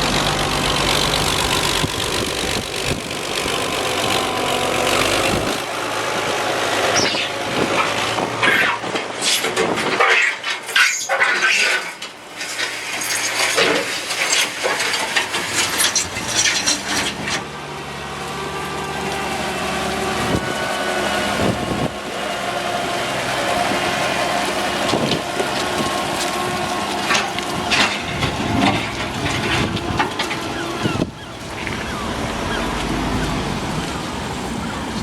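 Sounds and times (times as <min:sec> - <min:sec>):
tractor engine running: 0:00.0 - 0:10.7, 0:12.0 - 0:35.0
clattering and crunching: 0:07.0 - 0:17.5, 0:24.4 - 0:31.8.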